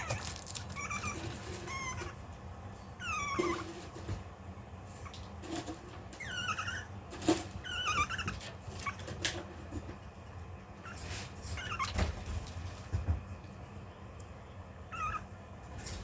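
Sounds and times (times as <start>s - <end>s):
puppy whimpering: 0.0s - 2.4s, 3.0s - 4.1s, 6.2s - 9.4s, 10.8s - 12.1s, 14.9s - 15.3s.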